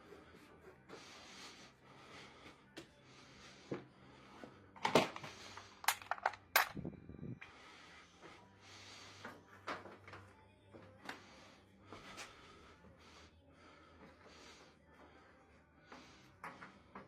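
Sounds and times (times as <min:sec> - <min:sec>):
metal and plastic parts clinking: 0:04.8 - 0:06.8.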